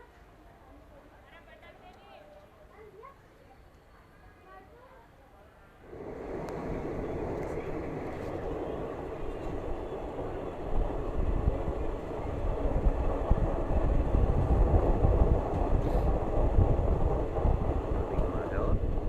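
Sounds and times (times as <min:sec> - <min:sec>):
passenger train rumbling clatter: 0:05.9 - 0:19.0.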